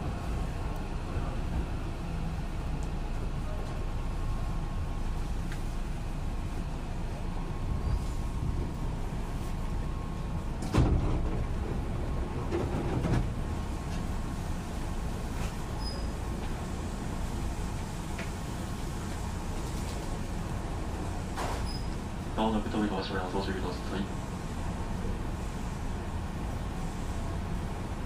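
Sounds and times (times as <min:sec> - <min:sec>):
faint train whine: 0:00.0 - 0:28.0
train interior rumble: 0:00.0 - 0:28.0
train clanks: 0:10.5 - 0:14.1.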